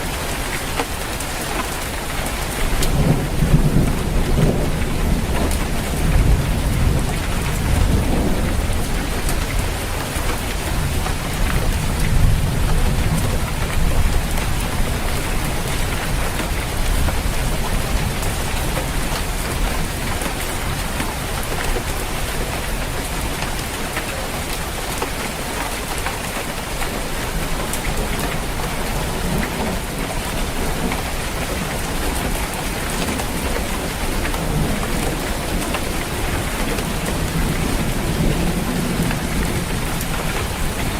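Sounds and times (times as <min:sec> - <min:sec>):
rain drumming on a roof: 0:00.0 - 0:40.9
rolling thunder rumble: 0:02.7 - 0:20.8, 0:27.4 - 0:40.9.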